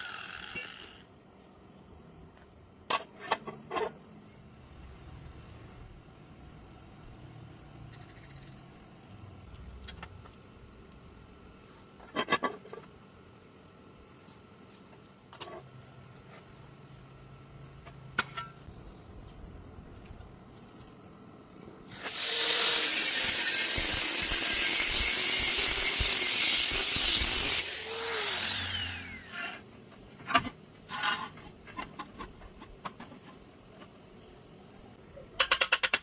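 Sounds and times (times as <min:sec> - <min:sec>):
power tool motor whining: 0:22.0 - 0:29.5.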